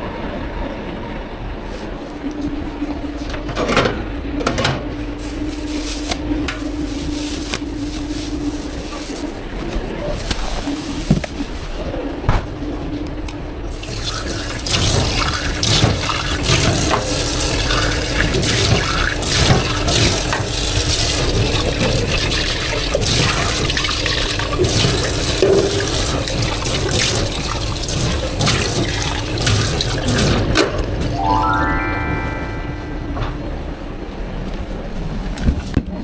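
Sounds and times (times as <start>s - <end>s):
clatter of items being rinsed: 13.7s - 31.1s.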